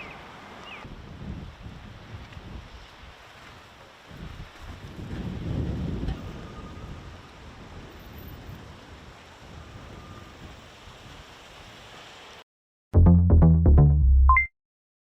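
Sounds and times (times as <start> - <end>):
wind rushing across microphone: 0.8 - 11.3
loud music sting: 13.0 - 14.3.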